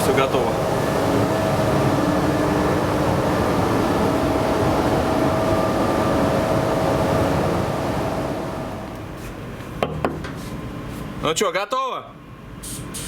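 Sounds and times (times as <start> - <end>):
steady hum: 0.0 - 11.5
ventilation fans rushing air: 0.0 - 13.0.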